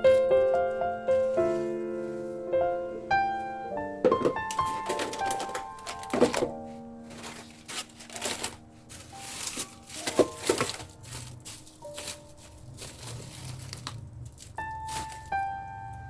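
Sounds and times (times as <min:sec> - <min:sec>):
soft background music: 0:00.0 - 0:16.0
crinkling and rustling: 0:03.9 - 0:16.0.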